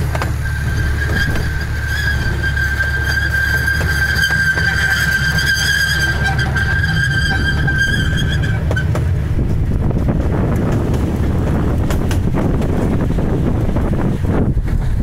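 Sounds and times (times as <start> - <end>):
train car rumbling: 0.0 - 15.0
wind buffeting microphone: 0.0 - 15.0.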